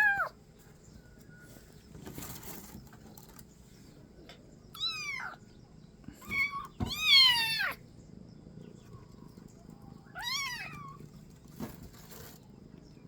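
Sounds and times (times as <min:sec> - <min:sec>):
kitten meowing: 0:04.8 - 0:05.4, 0:06.2 - 0:07.8, 0:10.2 - 0:11.0.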